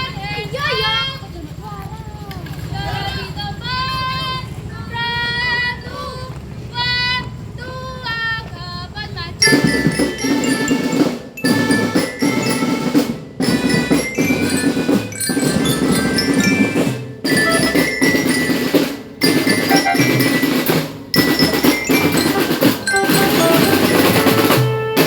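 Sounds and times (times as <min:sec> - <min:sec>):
drums: 0:09.4 - 0:25.0
glockenspiel: 0:09.4 - 0:25.0
wavering melodic line: 0:09.4 - 0:25.0.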